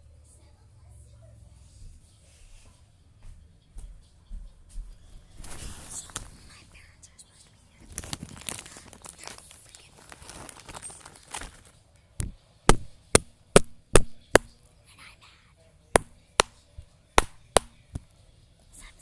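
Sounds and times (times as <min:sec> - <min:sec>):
soft crinkling: 0:05.4 - 0:06.8, 0:07.7 - 0:12.4
sharp knocks: 0:12.2 - 0:14.5.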